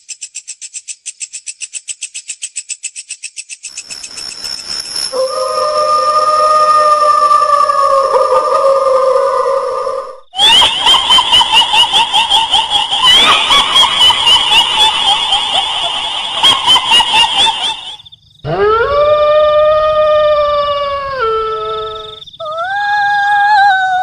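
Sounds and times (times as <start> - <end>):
woman wailing: 5.2 - 24.0
shrill pulsing cackling laugh: 5.3 - 19.0.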